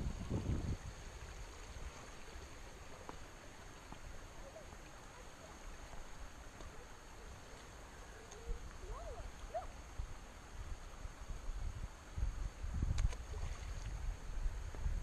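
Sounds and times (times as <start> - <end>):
wind rumble on microphone: 0.0 - 2.1, 8.4 - 15.0
flowing river water: 0.0 - 15.0.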